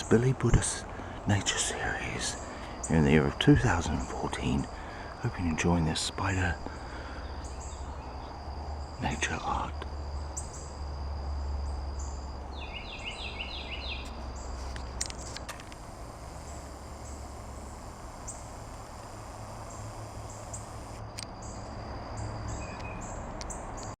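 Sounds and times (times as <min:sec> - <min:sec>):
bird calling: 0:00.0 - 0:10.8, 0:11.6 - 0:21.6
insects trilling and chirping: 0:00.0 - 0:24.0.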